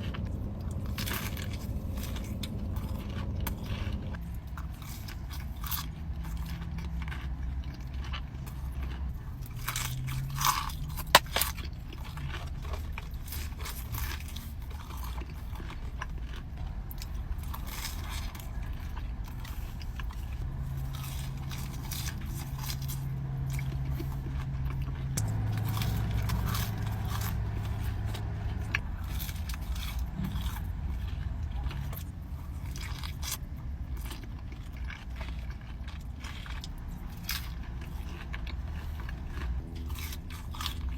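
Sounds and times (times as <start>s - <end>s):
crunchy bites and chewing: 0.0s - 40.9s
steady low hum: 0.0s - 40.9s.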